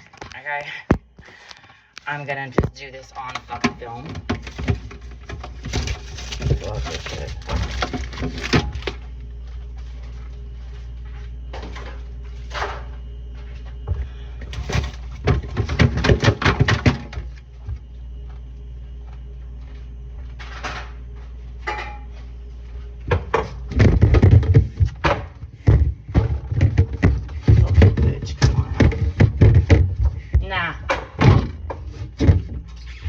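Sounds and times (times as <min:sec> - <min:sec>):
refrigerator hum: 0:00.0 - 0:33.0
clatter and knocks in refrigerator: 0:02.6 - 0:09.0, 0:13.8 - 0:17.9, 0:23.0 - 0:32.9.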